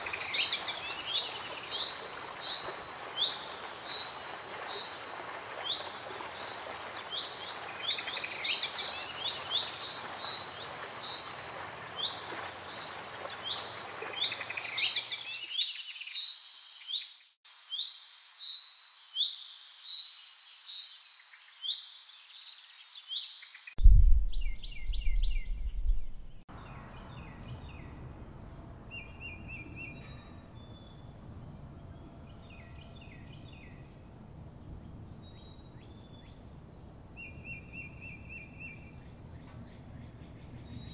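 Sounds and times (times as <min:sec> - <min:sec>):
songbirds chirping: 0:00.0 - 0:40.9
loud low rumble: 0:23.8 - 0:29.6.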